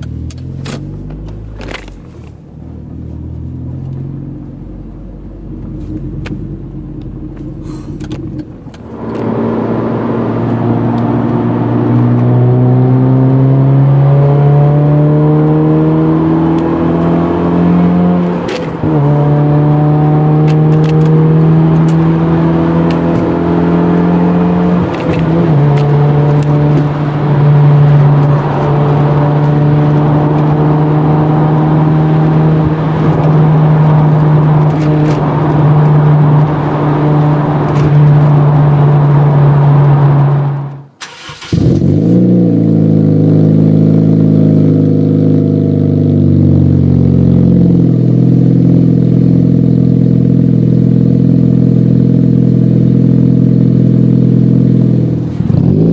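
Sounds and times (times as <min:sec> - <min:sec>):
car engine accelerating: 0:00.0 - 0:55.9
gear changes: 0:05.6 - 0:43.5.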